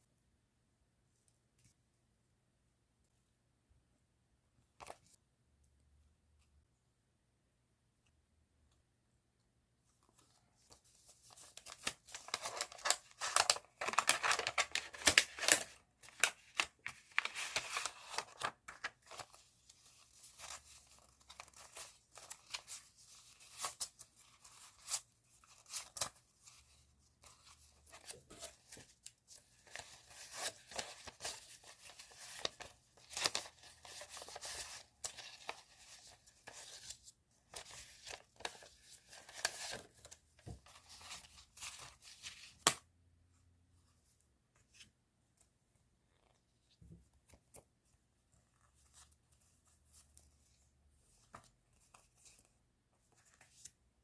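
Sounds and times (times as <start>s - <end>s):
paper and plastic rustling: 10.2s - 20.7s.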